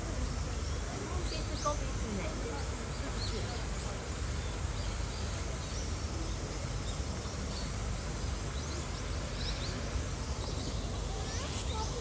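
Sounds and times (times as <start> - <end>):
faint bird chirps: 4.4 - 12.0.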